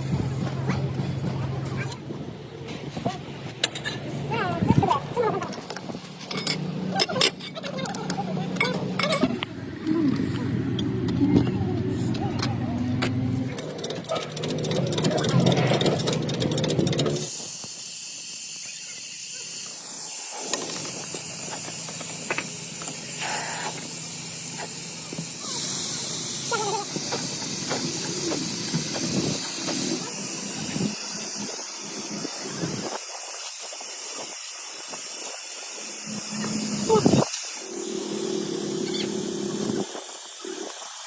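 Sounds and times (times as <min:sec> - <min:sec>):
low engine hum: 0:00.0 - 0:17.4
loud hiss of air: 0:17.2 - 0:41.0.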